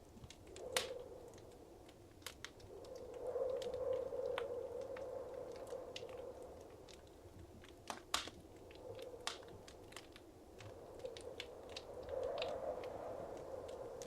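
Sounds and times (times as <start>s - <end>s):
fire popping and snapping: 0.0s - 14.0s
rush of flames: 0.3s - 14.0s.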